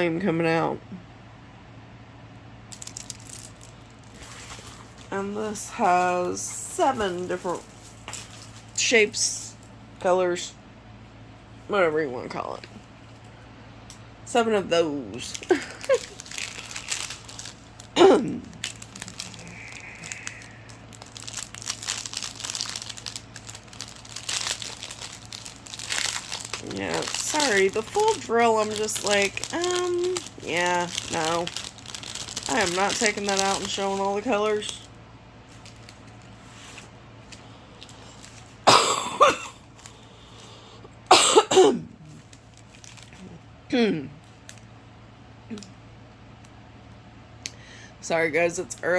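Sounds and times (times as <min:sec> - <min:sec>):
plastic packaging crinkling: 0:02.7 - 0:08.9, 0:15.2 - 0:40.6, 0:42.0 - 0:43.3
woman coughing: 0:38.7 - 0:39.6, 0:41.1 - 0:41.9, 0:43.7 - 0:44.1.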